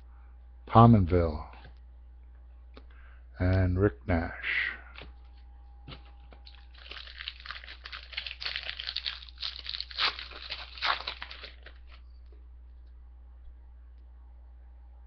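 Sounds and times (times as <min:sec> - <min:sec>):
foil wrapper crinkling: 0:06.4 - 0:12.0
wrapper ripping: 0:06.4 - 0:12.0.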